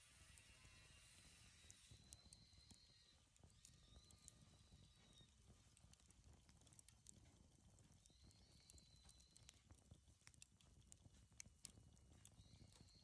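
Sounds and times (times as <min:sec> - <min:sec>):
bonfire crackling: 0:05.2 - 0:08.1.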